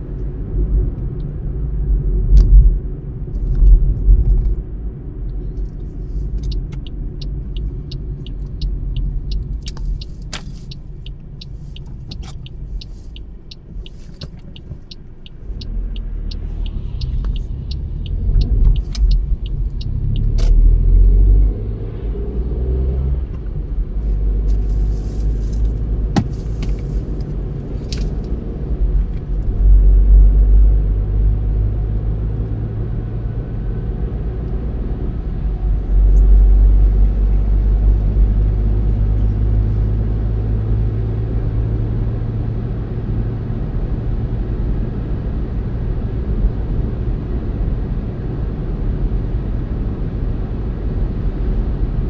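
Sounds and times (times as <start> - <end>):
car tyres and engine rumbling: 0.0 - 52.0
sharp clicks: 6.4 - 20.6.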